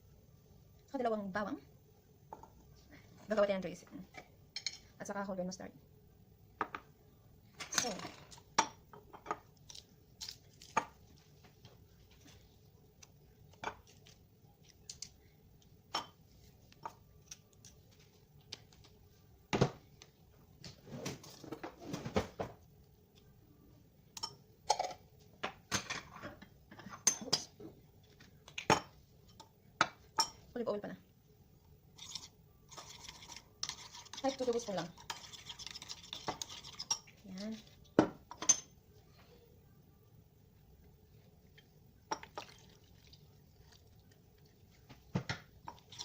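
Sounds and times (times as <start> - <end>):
spoon clinking on bowl and jars: 24.2 - 25.0, 38.3 - 38.8.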